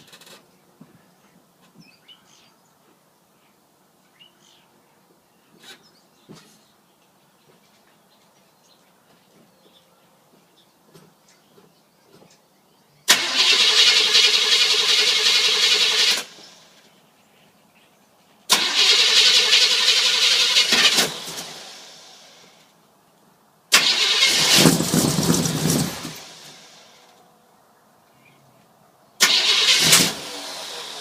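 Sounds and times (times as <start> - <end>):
engine rumble: 13.0 - 17.0, 18.5 - 22.8, 23.7 - 27.3, 28.1 - 31.0
starter cranking engine: 13.1 - 16.6, 18.5 - 22.3, 23.7 - 26.7, 29.2 - 31.0.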